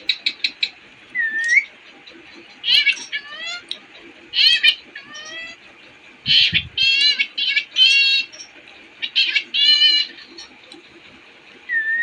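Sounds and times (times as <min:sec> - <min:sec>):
parrot whistling: 0:01.2 - 0:01.7, 0:11.7 - 0:12.0.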